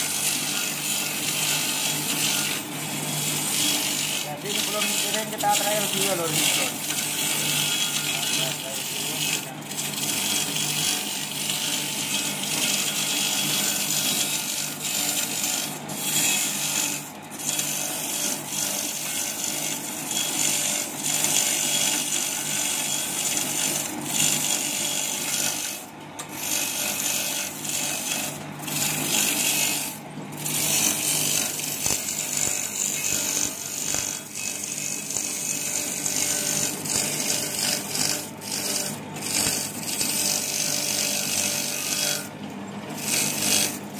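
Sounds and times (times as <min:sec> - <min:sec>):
grinding disc rasping hiss: 0:03.1 - 0:07.0.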